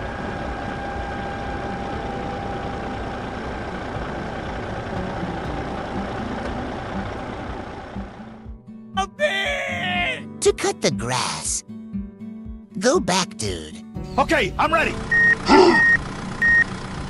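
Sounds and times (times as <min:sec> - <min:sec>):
faint high whine: 0:00.0 - 0:04.5
tractor engine running: 0:00.0 - 0:08.6, 0:14.2 - 0:17.0.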